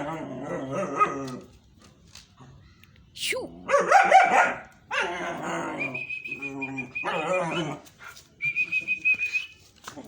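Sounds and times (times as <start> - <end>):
dog whining and yelping: 4.9 - 7.9
high whistle-like tone: 5.8 - 7.3, 8.4 - 9.7.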